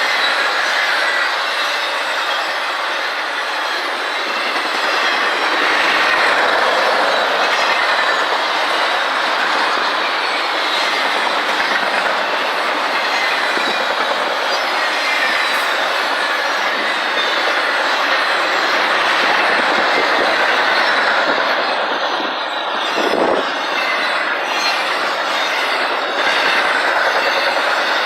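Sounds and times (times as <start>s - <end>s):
freight train rolling past: 0.0s - 28.0s
wheel squeal: 0.0s - 28.0s.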